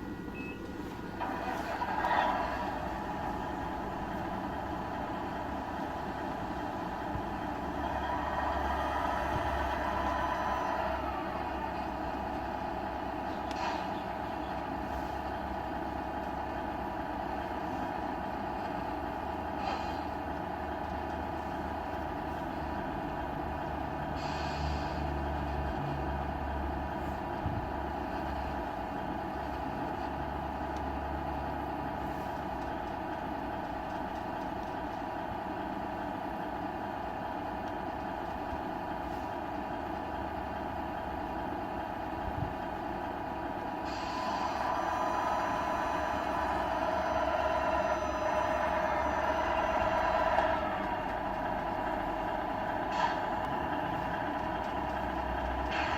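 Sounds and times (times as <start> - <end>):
simulated truck engine idling: 0.0 - 55.9
air brake hisses: 19.6 - 20.1, 24.1 - 25.2, 43.8 - 49.3.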